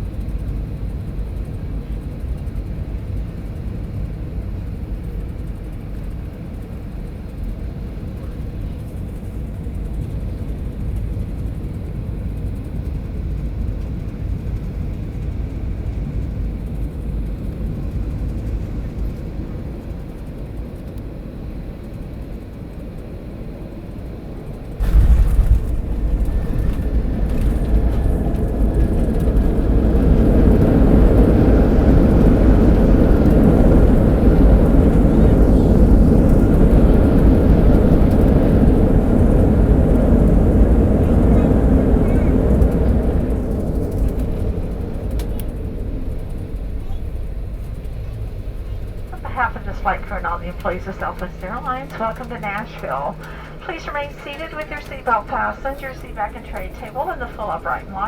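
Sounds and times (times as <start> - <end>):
aircraft cabin engine drone: 0.0 - 58.0
aircraft touchdown rumble: 24.0 - 58.0.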